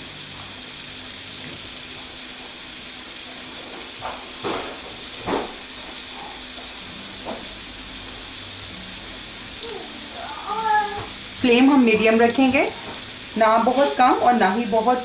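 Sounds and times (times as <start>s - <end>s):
kebabs sizzling in a pan: 0.0s - 15.0s.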